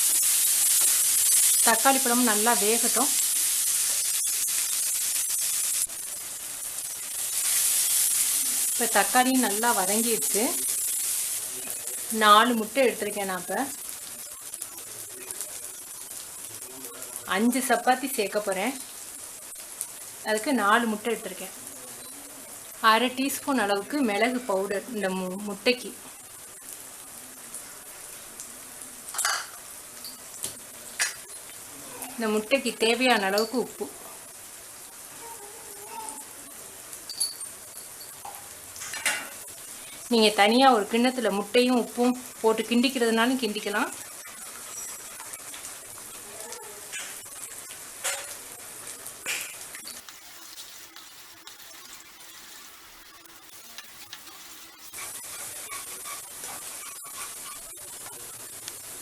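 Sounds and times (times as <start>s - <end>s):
masala sizzling in a frying pan: 0.0s - 59.0s.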